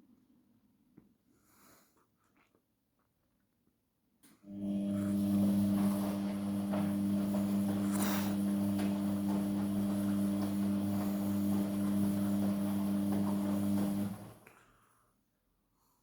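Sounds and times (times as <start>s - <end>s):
washing machine drain pump humming: 4.4s - 14.5s.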